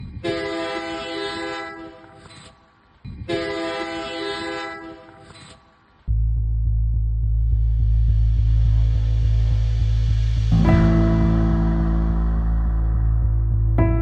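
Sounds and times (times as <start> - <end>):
horn blasts: 0.1 - 2.2, 3.3 - 5.2
loud low hum: 6.1 - 14.0.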